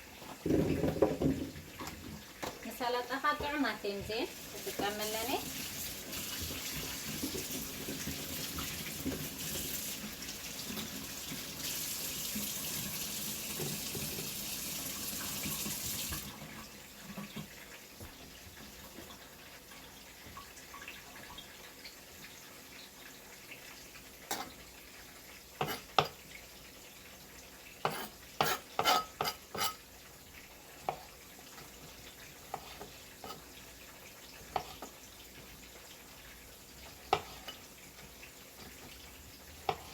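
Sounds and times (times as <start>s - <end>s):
tap running into sink: 0.3s - 2.6s, 11.6s - 16.3s
kitchenware knocking and clinking: 0.4s - 2.6s.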